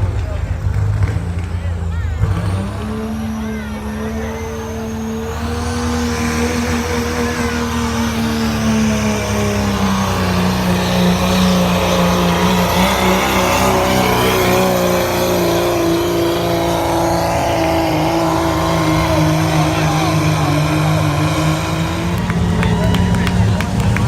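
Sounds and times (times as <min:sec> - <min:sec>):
vehicle engine under load: 0:00.0 - 0:24.0.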